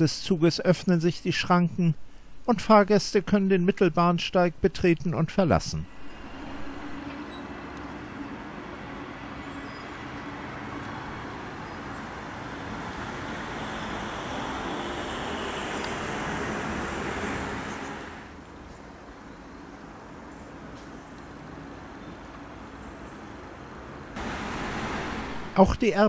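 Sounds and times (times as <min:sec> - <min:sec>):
train rolling rumble: 0:05.9 - 0:18.4, 0:24.2 - 0:26.0.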